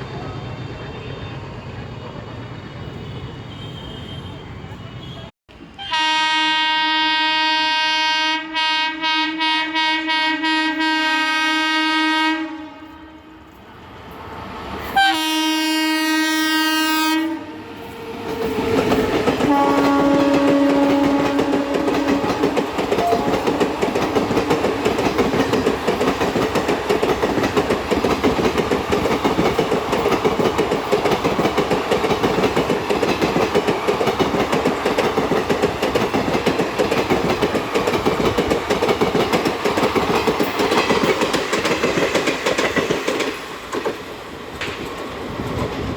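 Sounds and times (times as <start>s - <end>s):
train horn blasts: 3.5s - 13.4s, 15.0s - 17.9s, 19.4s - 24.0s
train wheels clickety-clack: 17.8s - 45.9s.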